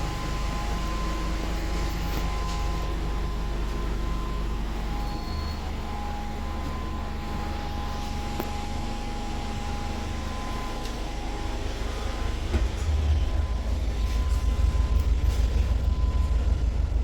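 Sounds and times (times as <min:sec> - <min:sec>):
bus drivetrain rumble: 0:00.0 - 0:17.0
thin steady whine: 0:00.0 - 0:17.0
bus body rattles: 0:10.8 - 0:17.0.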